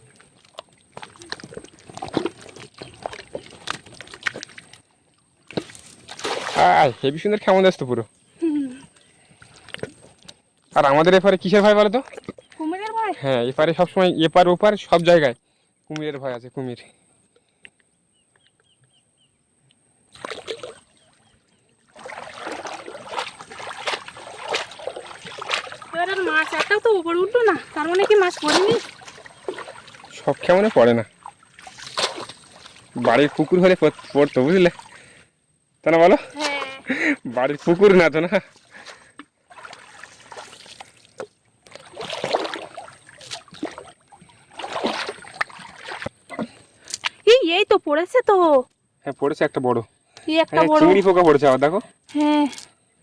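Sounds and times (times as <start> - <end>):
water splashing and dripping: 0.0 - 7.8, 9.0 - 13.1, 20.1 - 35.2, 36.0 - 47.3.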